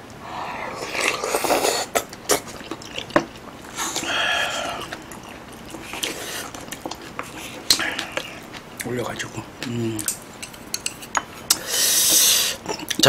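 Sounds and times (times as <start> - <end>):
slurping broth from spoon: 0.4 - 8.5.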